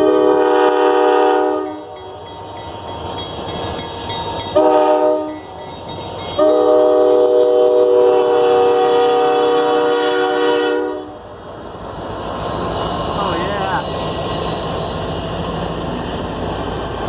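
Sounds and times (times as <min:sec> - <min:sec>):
locomotive air horn blasts: 0:00.0 - 0:02.0, 0:04.6 - 0:05.4, 0:06.4 - 0:11.2.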